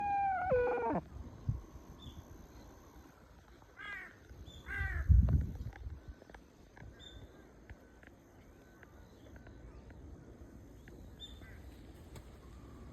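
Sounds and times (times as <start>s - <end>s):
bird calls: 0.0s - 1.0s.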